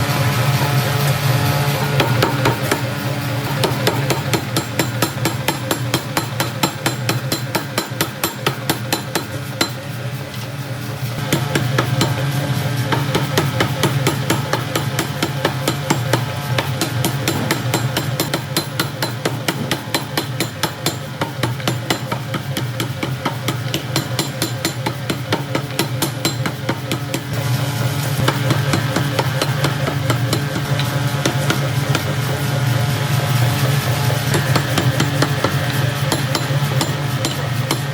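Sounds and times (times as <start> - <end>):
steady hum: 0.0 - 37.9.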